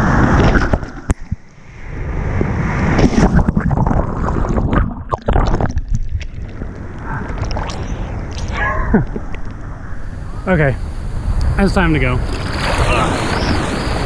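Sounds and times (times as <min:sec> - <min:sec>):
wind rumbling on microphone: 0:00.0 - 0:14.0
crackling splashes: 0:02.4 - 0:09.7, 0:12.2 - 0:14.0
ocean surf churning: 0:06.4 - 0:14.0.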